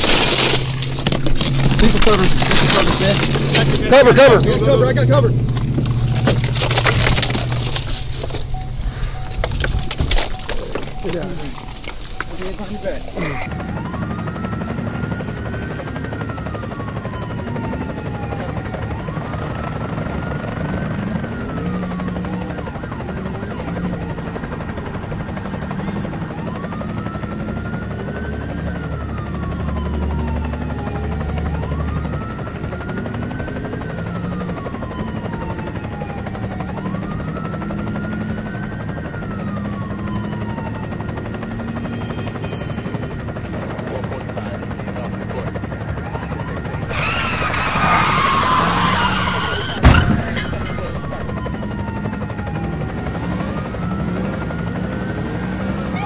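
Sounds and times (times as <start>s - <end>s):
low mechanical drone: 0.0s - 12.4s, 46.8s - 51.6s
police siren wailing: 0.0s - 56.0s.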